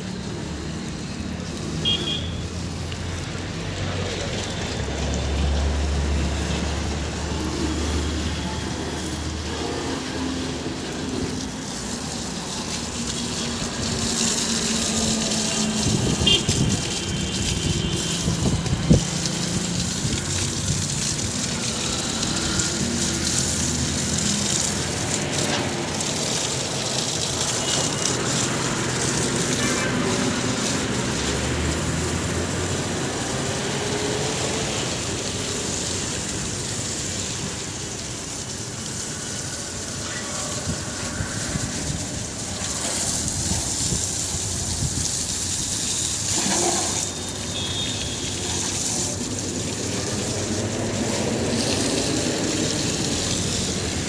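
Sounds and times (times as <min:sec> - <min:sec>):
steady rushing hiss: 0:00.0 - 0:54.0.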